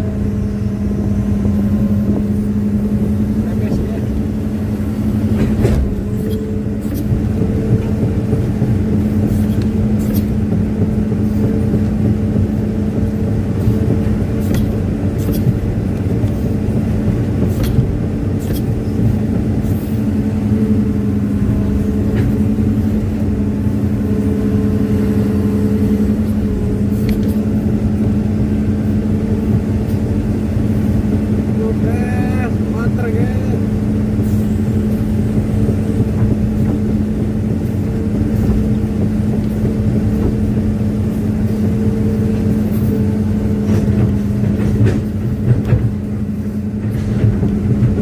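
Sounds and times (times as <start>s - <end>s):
diesel engine running: 0.0s - 48.0s
sharp clicks and knocks: 13.9s - 19.4s, 43.6s - 46.0s.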